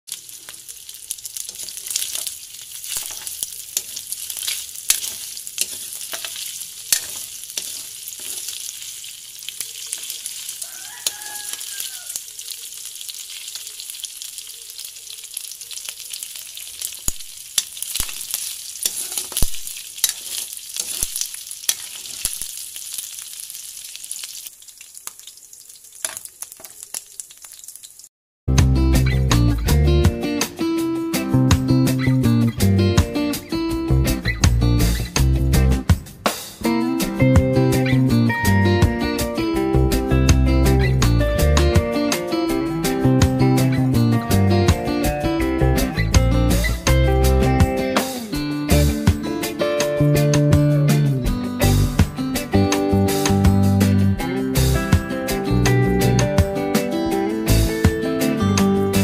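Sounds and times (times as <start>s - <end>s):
meat sizzling in oil: 0.1s - 28.1s, 44.7s - 49.6s
metal spatula scraping pan: 2.9s - 8.6s, 18.4s - 19.4s, 20.0s - 22.3s.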